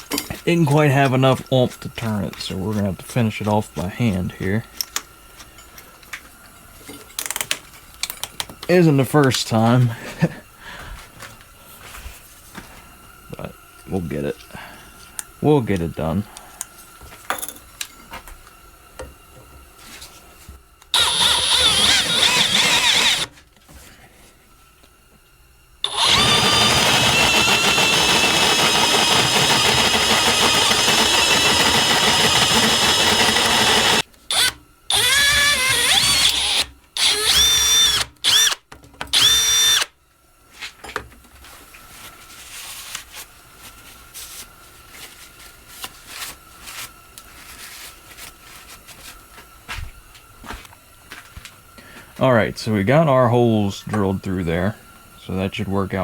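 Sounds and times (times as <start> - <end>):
electric drill boring steel: 20.9 - 23.3, 25.8 - 38.6, 39.2 - 39.9.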